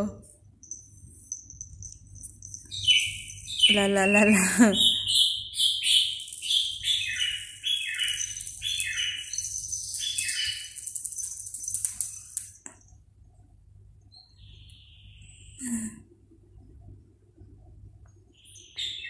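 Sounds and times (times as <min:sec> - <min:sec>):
bird chirping: 0:00.6 - 0:12.9, 0:14.0 - 0:15.6, 0:18.2 - 0:19.0.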